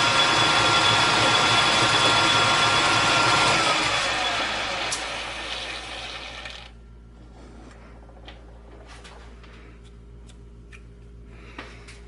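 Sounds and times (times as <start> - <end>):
lathe winding down: 0.0 - 6.8
low steady hum: 6.7 - 12.0.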